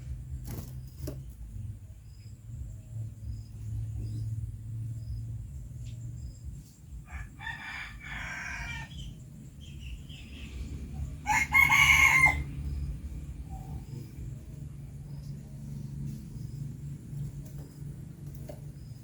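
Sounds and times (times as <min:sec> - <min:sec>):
steady low hum: 0:00.0 - 0:08.1, 0:12.4 - 0:19.0.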